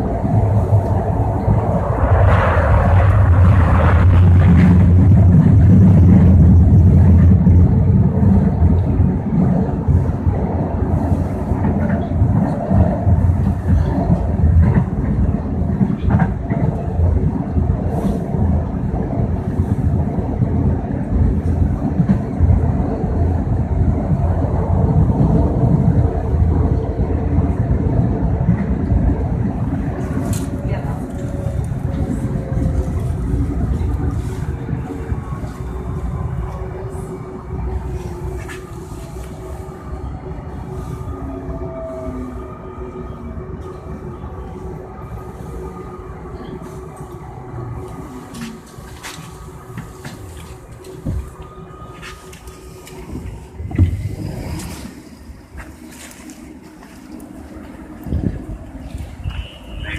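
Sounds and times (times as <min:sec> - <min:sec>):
light-rail train rumbling: 0:00.0 - 0:59.9.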